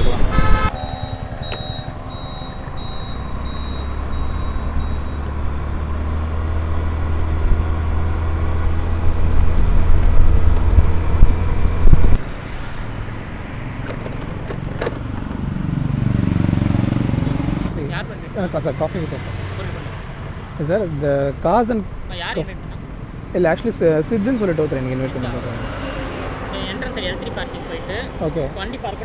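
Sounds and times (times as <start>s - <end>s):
car engine and road rumble: 0.0s - 18.2s.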